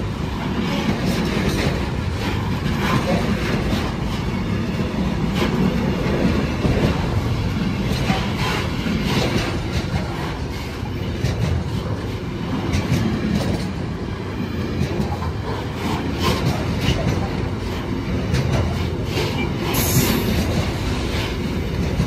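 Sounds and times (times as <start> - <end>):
train wheels rumbling on rails: 0.0 - 22.0
wheels clacking over rail joints: 0.0 - 22.0.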